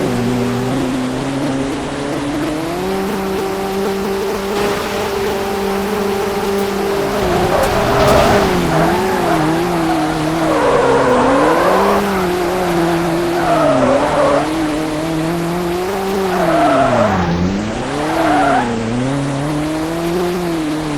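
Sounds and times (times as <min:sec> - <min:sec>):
tyres screeching: 0:00.0 - 0:20.7
car engine revving: 0:00.0 - 0:20.9.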